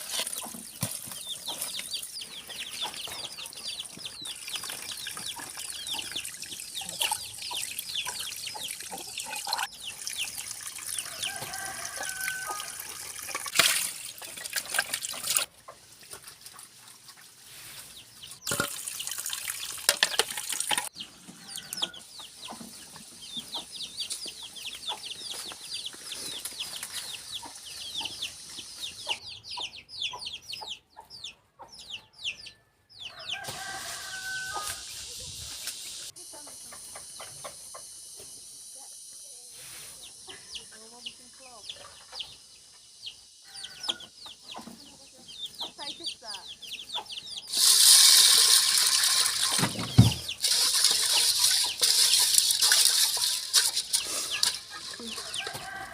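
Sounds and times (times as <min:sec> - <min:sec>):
chickens clucking: 0:00.0 - 0:13.0, 0:15.4 - 0:18.7, 0:20.8 - 0:38.3, 0:39.6 - 0:55.9.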